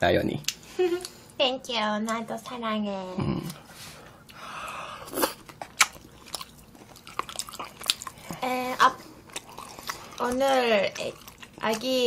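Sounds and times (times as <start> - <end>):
person chewing food: 3.4 - 12.0
wet mouth smacks: 5.1 - 6.5.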